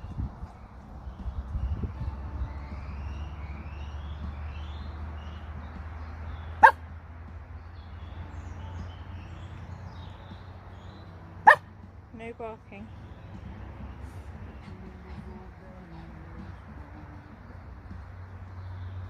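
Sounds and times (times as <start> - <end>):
steady low rumble: 0.0 - 19.0
dog barking: 6.6 - 6.8, 11.4 - 11.6.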